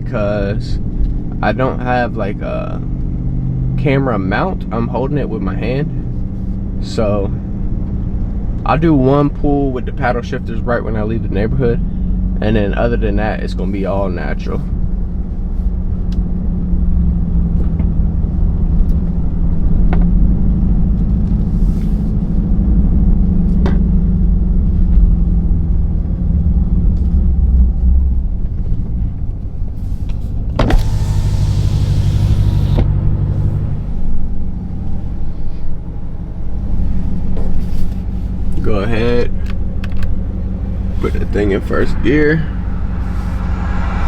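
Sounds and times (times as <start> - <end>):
car exhaust drone: 0.0 - 44.0
brief hiss: 30.7 - 33.6.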